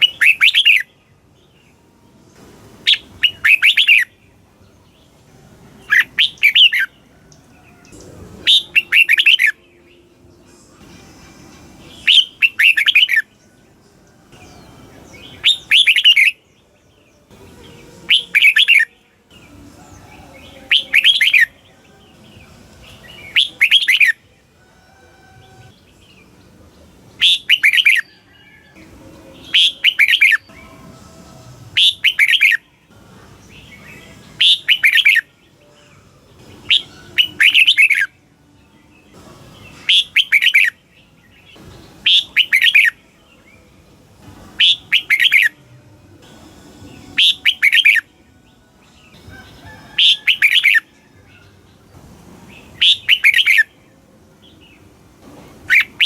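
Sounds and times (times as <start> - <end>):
bird whistling song phrases: 0.0 - 1.0, 2.8 - 4.2, 5.9 - 9.8, 11.9 - 13.4, 15.0 - 16.5, 18.1 - 19.0, 20.4 - 21.6, 23.1 - 24.2, 27.2 - 28.7, 29.4 - 30.7, 31.8 - 32.7, 33.4 - 35.3, 36.6 - 38.1, 39.7 - 40.8, 41.5 - 43.0, 44.6 - 45.6, 47.2 - 48.1, 49.3 - 50.9, 52.8 - 53.7.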